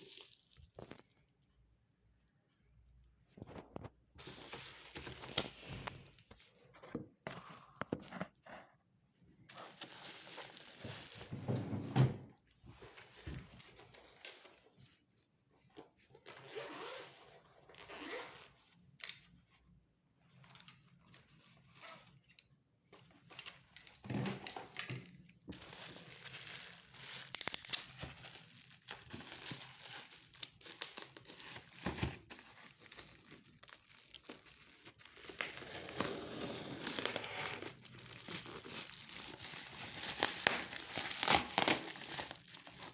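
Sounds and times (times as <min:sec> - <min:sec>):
packaging crinkling and tearing: 0:03.4 - 0:06.6, 0:09.5 - 0:11.3, 0:25.5 - 0:42.9.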